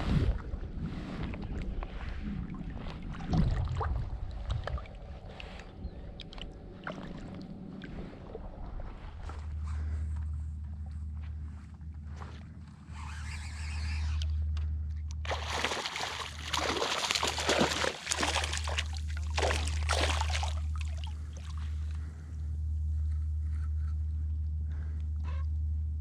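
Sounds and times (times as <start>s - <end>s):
steady low rumble: 0.0s - 26.0s
water sloshing and splashing: 1.4s - 9.4s, 15.2s - 22.0s.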